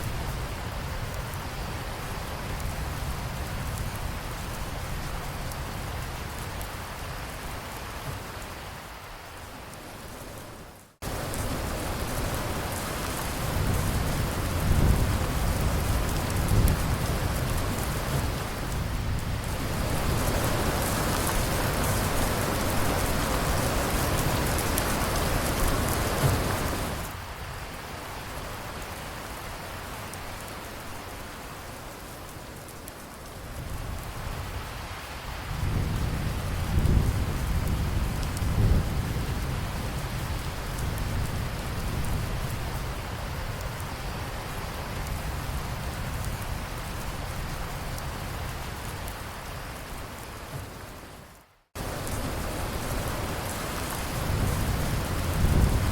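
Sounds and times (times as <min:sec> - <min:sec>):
steady rain: 0:00.0 - 0:55.9
rolling thunder: 0:35.5 - 0:42.9, 0:52.0 - 0:55.9.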